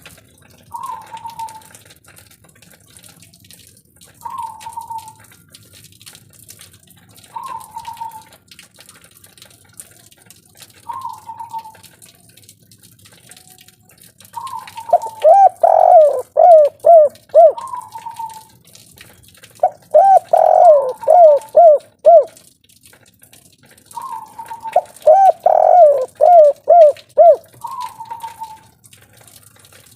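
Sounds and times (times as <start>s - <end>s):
dove cooing: 14.4s - 18.5s, 19.6s - 22.4s, 24.0s - 28.6s.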